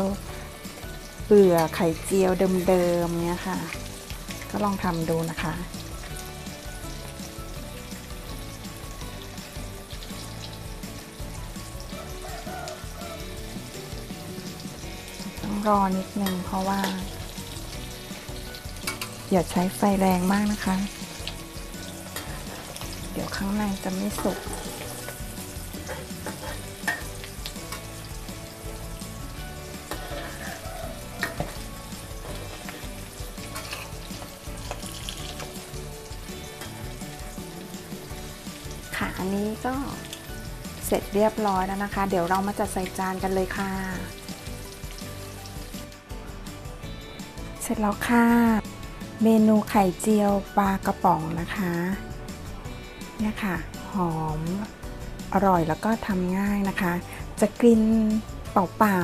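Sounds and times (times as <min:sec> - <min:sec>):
background music: 0:00.0 - 0:59.0
omelette sizzling in hot oil: 0:00.0 - 0:59.0
metal spatula scraping pan: 0:14.6 - 0:19.3, 0:20.6 - 0:28.6, 0:29.7 - 0:35.7.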